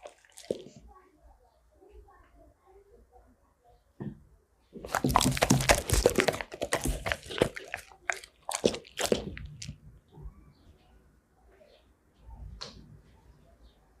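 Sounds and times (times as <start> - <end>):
dog chewing and crunching food: 0.0 - 0.8, 4.8 - 9.9.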